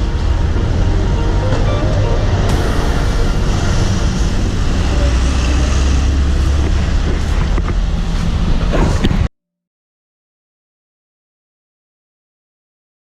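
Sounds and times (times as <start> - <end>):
vehicle traffic rumble: 0.0 - 9.3.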